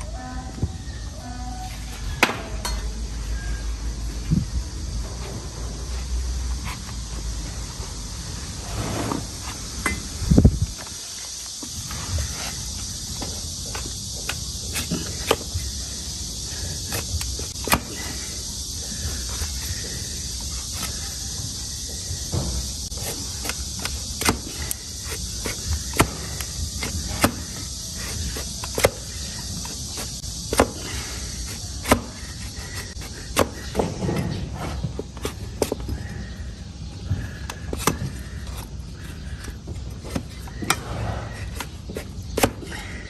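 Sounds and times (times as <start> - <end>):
steady high hiss: 0.0 - 33.8.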